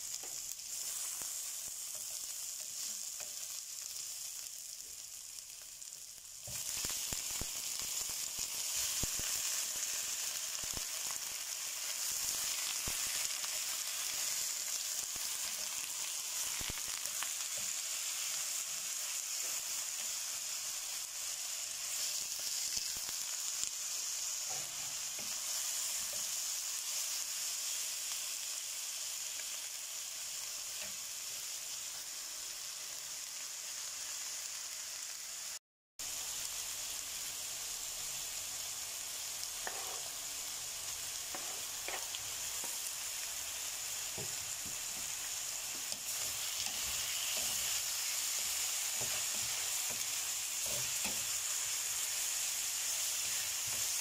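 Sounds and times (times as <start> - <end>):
ginger and onion sizzling in oil: 0.0 - 54.0
spatula knocking and scraping pan: 39.6 - 40.1, 41.3 - 42.8.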